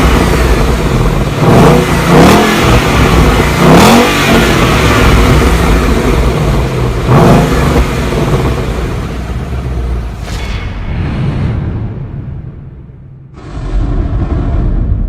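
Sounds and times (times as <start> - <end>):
car engine revving: 0.0 - 10.3.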